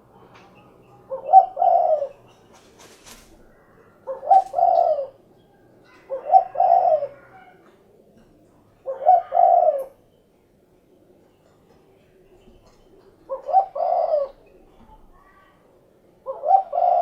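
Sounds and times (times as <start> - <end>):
dove cooing: 0.6 - 10.1, 12.3 - 15.1, 16.2 - 17.0.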